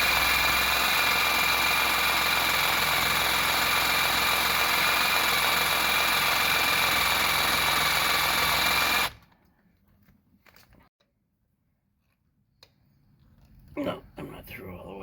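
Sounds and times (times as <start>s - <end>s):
power hacksaw cutting metal: 0.0s - 9.2s.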